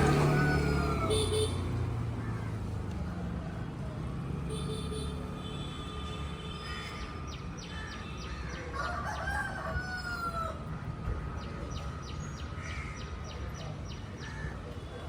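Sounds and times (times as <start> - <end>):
rooster crowing: 0.0 - 1.3, 8.7 - 10.6.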